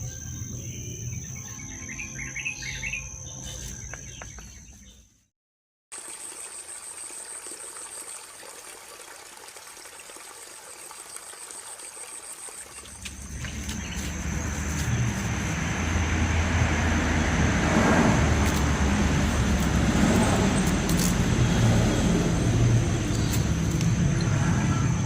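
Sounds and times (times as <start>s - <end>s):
faint outdoor background noise: 6.0s - 25.0s
insect chirring: 11.2s - 16.2s, 18.2s - 25.0s.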